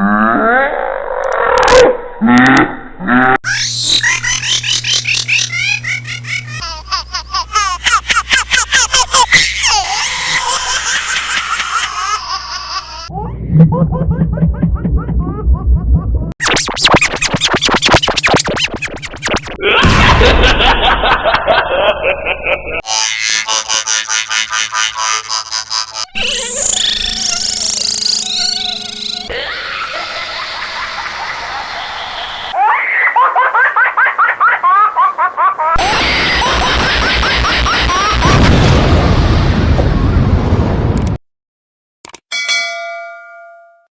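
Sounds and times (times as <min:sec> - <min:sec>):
remixed baby laughing: 0:03.5 - 0:16.4, 0:19.6 - 0:26.8, 0:29.3 - 0:38.4
steady noise: 0:16.1 - 0:20.9.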